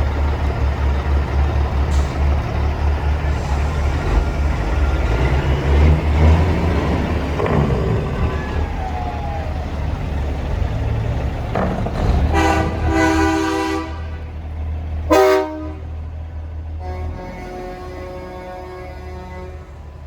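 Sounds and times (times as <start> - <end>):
diesel engines rumbling: 0.0 - 20.0
truck air horns blowing: 12.0 - 14.4, 15.0 - 16.0, 16.7 - 20.0.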